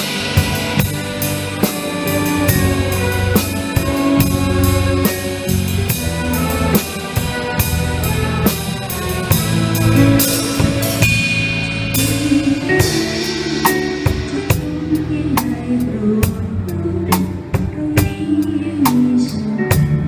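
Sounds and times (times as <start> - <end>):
sustained melody notes: 0.0 - 18.7
bass: 0.0 - 20.0
drum kit beat: 0.0 - 20.0
cymbal strokes: 9.3 - 15.4.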